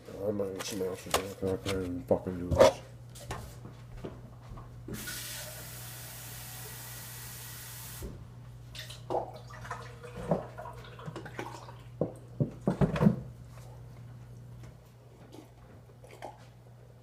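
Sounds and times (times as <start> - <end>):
low electrical hum: 0.0 - 17.0
hiss: 5.0 - 8.1.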